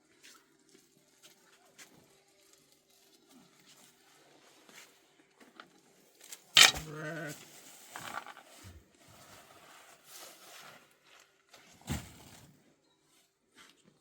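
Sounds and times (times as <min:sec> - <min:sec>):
livestock bleating: 0:06.8 - 0:07.4.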